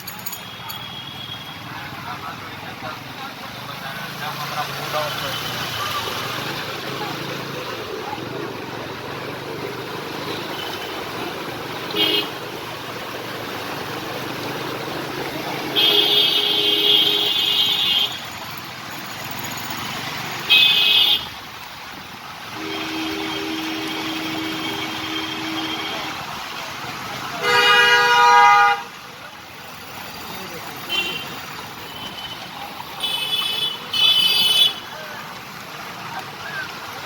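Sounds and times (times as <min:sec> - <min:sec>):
steady traffic noise: 0:00.0 - 0:37.0
vehicle horns honking: 0:11.8 - 0:12.4, 0:15.7 - 0:18.3, 0:20.4 - 0:21.4, 0:22.5 - 0:26.3, 0:27.4 - 0:29.0, 0:30.8 - 0:35.0.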